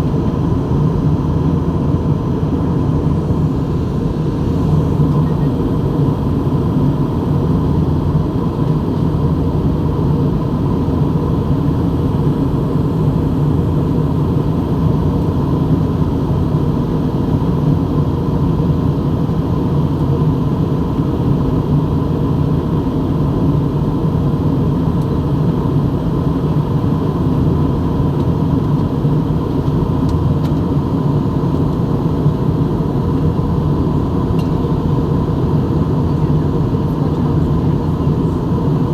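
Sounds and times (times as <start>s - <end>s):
aeroplane drone: 0.0s - 38.9s.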